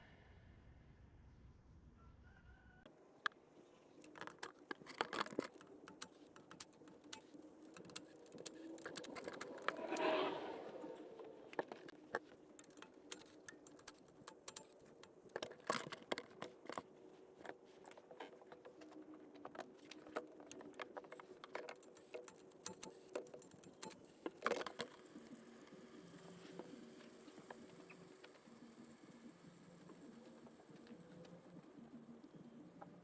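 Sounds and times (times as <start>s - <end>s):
hand tools tapping and clicking: 3.2s - 25.1s.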